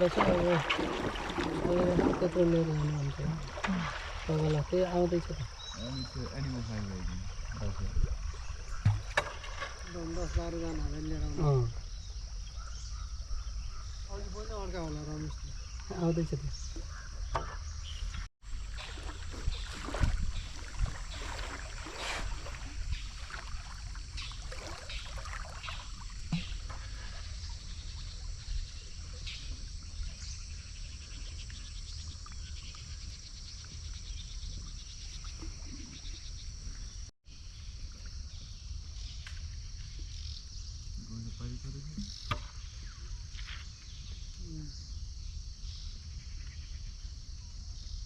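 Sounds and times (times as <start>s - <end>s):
paddle splashing in water: 0.0s - 10.6s, 18.4s - 36.2s
high insect drone: 0.0s - 48.0s.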